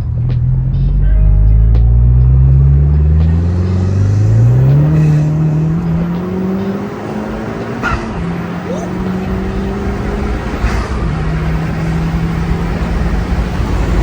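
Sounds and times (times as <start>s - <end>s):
car engine accelerating: 0.0s - 14.0s
brief sharp sound: 7.7s - 8.8s.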